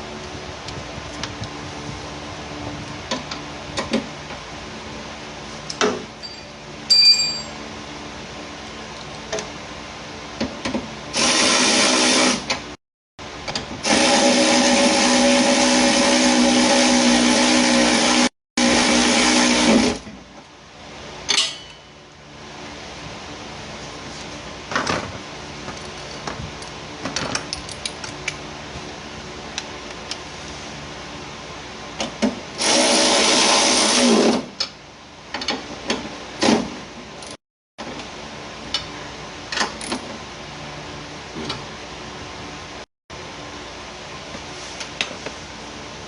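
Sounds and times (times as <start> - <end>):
electric power tool motor running: 11.1 - 12.5, 13.8 - 20.0, 32.6 - 34.4.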